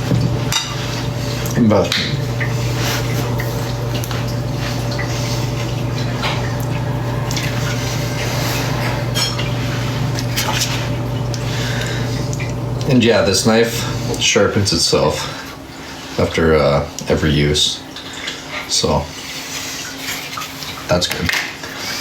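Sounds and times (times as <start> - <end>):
dishes clicking and knocking: 0.0 - 2.2
steady low hum: 0.0 - 14.4.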